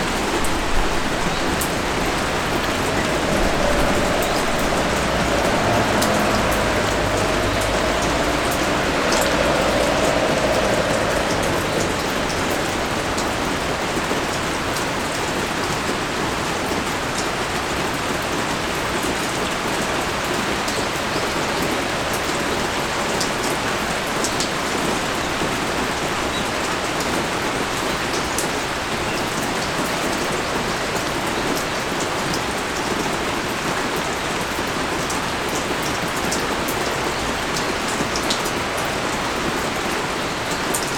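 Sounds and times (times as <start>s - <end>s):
low drone: 0.0s - 15.1s
heavy rain pouring: 0.0s - 40.9s
water drips: 0.2s - 15.3s.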